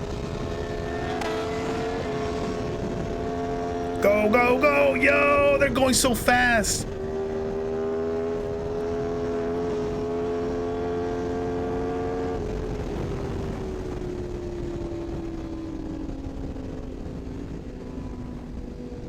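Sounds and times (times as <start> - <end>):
sportbike engine at high revs: 8.2 - 12.5.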